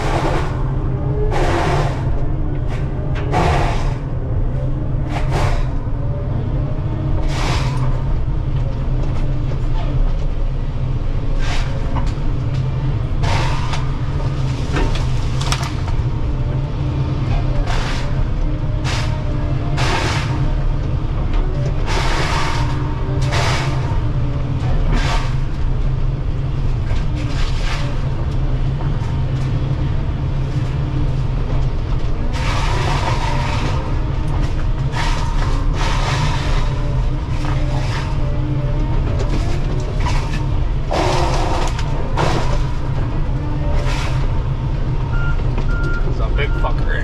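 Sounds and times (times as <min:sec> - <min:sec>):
loud bursts of noise: 0:00.0 - 0:06.2, 0:13.0 - 0:26.4, 0:31.5 - 0:45.6
diesel engine rumbling: 0:00.0 - 0:47.0.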